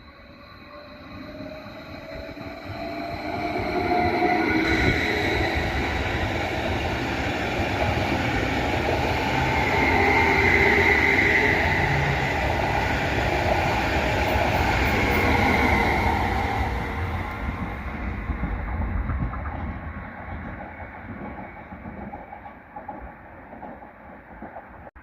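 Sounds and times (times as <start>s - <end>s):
high whine: 0.0s - 19.4s
train passing on rails: 0.0s - 25.0s.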